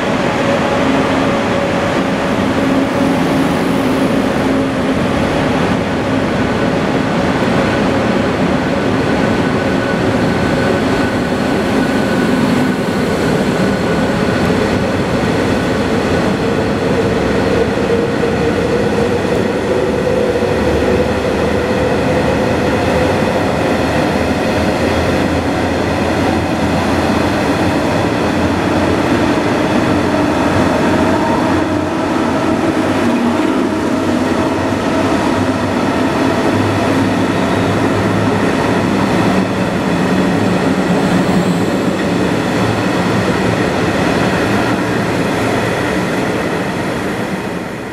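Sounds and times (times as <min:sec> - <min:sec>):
train wheels on rail: 0:00.0 - 0:47.9.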